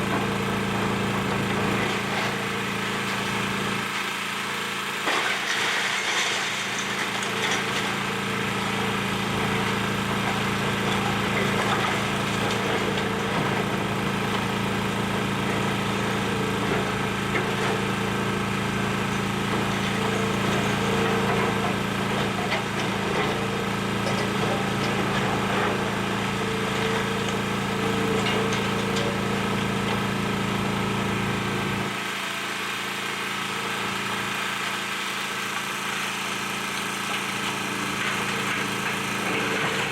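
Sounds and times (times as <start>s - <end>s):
excavator diesel engine running: 0.0s - 39.9s
demolition debris knocks and cracks: 4.9s - 18.1s, 18.8s - 30.4s.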